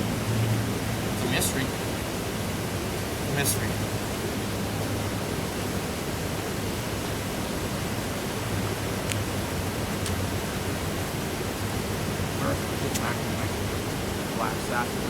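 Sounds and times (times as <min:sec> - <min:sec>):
steady hiss and low rumble: 0:00.0 - 0:15.0.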